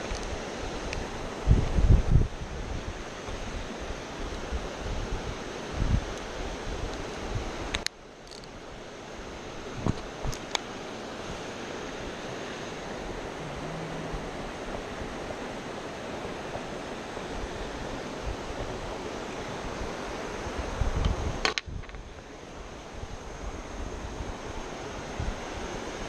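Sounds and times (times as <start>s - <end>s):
river water flowing: 0.0s - 26.0s.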